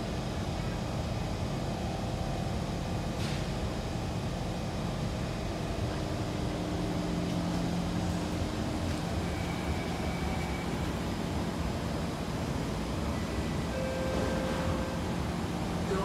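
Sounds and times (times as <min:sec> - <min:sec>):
train air conditioning hum: 0:00.0 - 0:16.0
steady low tone: 0:06.6 - 0:16.0.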